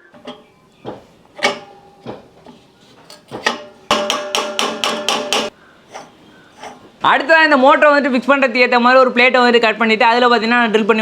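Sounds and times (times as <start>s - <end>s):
hammer striking metal: 0.2s - 2.4s, 3.1s - 5.6s.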